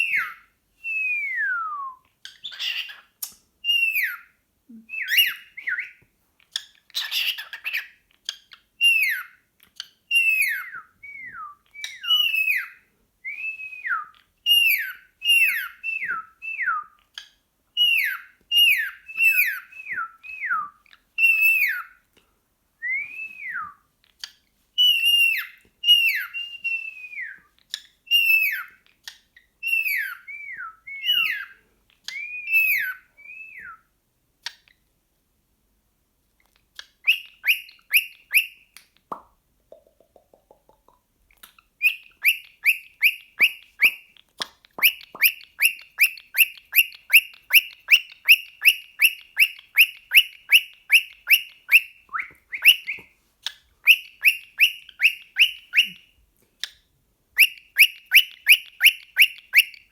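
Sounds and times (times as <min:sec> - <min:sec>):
cockatiel whistling: 0:00.0 - 0:03.0, 0:03.6 - 0:06.0, 0:08.8 - 0:09.4, 0:10.1 - 0:17.0, 0:17.8 - 0:22.0, 0:22.8 - 0:23.8, 0:24.8 - 0:28.8, 0:29.6 - 0:33.9, 0:37.0 - 0:38.7, 0:41.8 - 0:44.1, 0:44.8 - 0:56.2, 0:57.4 - 0:59.9
cockatiel sharp chirps: 0:02.2 - 0:04.3, 0:06.6 - 0:12.8, 0:24.2 - 0:33.7, 0:36.8 - 0:38.9, 0:41.4 - 0:56.8, 0:57.4 - 0:59.9.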